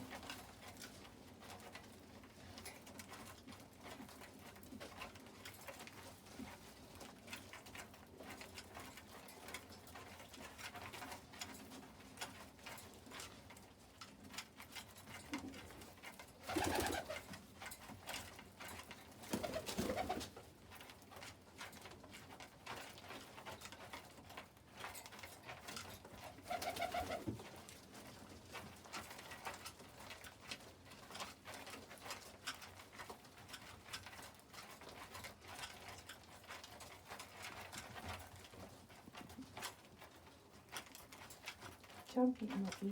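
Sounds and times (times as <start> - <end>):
pigeon wings fluttering: 16.4 - 17.3, 19.3 - 20.4, 26.4 - 27.3.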